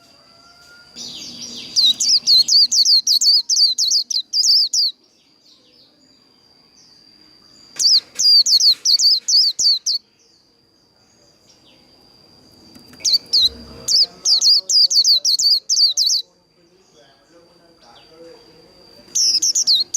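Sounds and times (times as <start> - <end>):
faint steady high tone: 0.0 - 19.9
bird singing high whistled notes: 0.9 - 7.0, 7.7 - 10.5, 13.0 - 16.3, 19.1 - 19.9.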